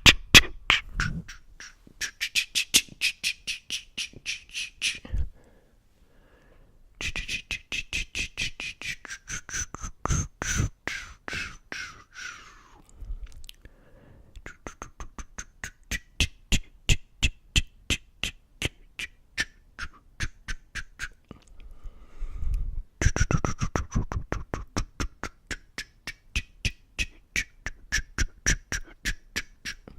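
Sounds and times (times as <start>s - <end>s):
tongue clicks and pops: 12.9s - 13.7s, 23.0s - 29.9s.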